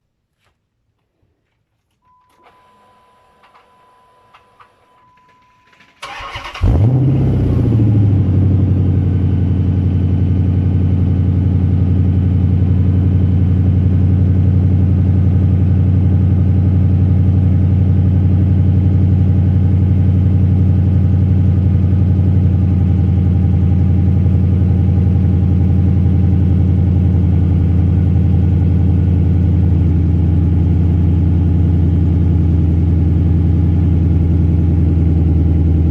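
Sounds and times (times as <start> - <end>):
faint steady tone: 2.0 - 6.0
car engine idling: 6.0 - 35.9.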